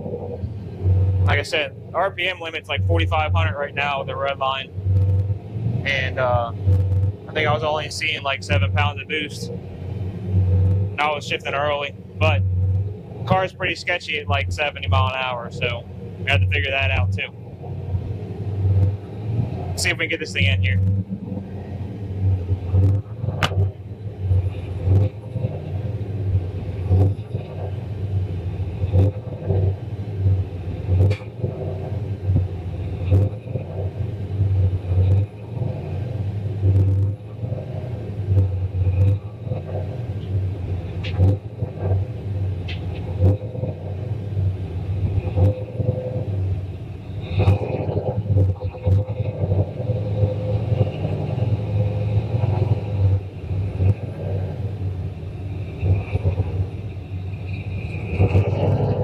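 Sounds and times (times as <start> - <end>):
car engine rumbling: 0.0 - 59.0
sharp clicks and knocks: 4.9 - 5.4, 6.5 - 9.0, 10.4 - 11.1, 22.2 - 27.9, 28.8 - 35.8, 36.6 - 37.6, 38.3 - 44.2, 47.2 - 54.5.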